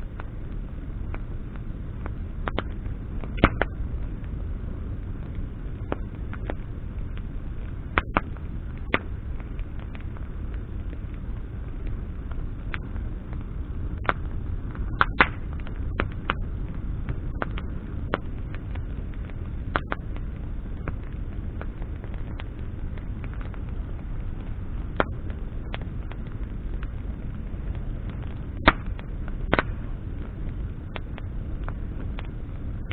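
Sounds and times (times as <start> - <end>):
bonfire crackling and popping: 0.0 - 32.9
low fire rumble: 0.0 - 32.9.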